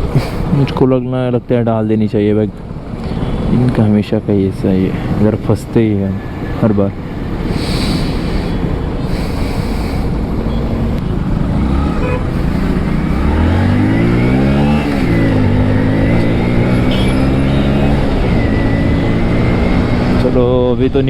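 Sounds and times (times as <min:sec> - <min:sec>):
motorcycle engine pulling away: 0:10.8 - 0:20.5.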